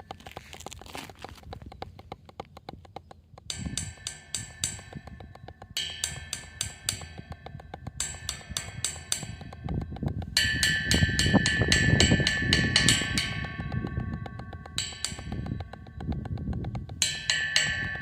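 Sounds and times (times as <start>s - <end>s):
cymbals ringing: 17.0s - 18.0s.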